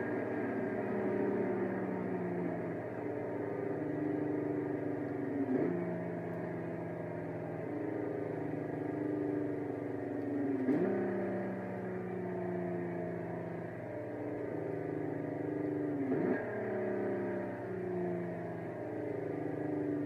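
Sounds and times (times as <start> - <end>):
car engine at high revs: 0.0 - 20.0.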